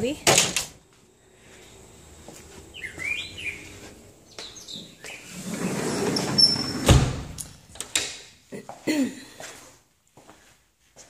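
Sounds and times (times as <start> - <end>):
birds chirping: 1.1 - 6.7.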